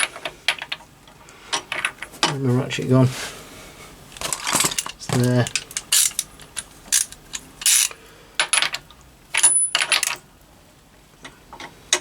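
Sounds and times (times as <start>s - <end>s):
ratchet wrench clicking: 4.7s - 8.0s.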